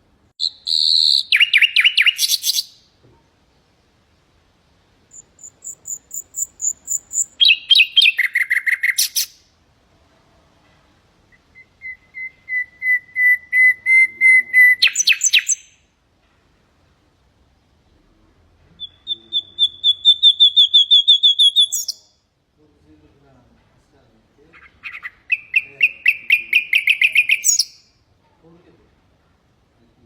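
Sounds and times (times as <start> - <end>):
nightingale singing: 0.4 - 2.9, 5.1 - 9.5, 11.3 - 15.9, 18.7 - 22.2, 24.5 - 28.0.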